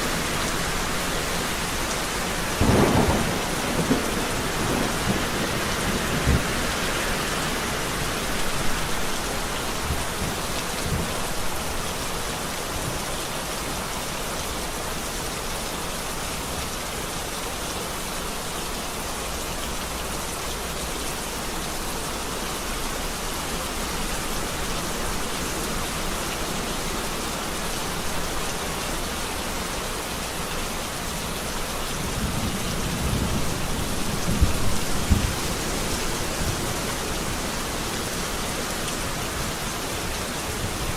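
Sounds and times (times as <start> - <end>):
steady rain falling: 0.0 - 40.9
thunder rumbling: 2.6 - 7.3, 32.0 - 37.7.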